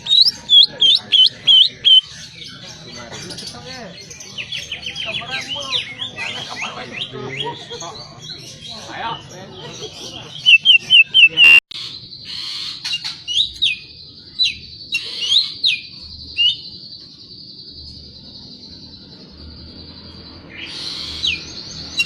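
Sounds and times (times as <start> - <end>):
bird singing sharp whistles: 0.0 - 2.1, 10.5 - 11.6.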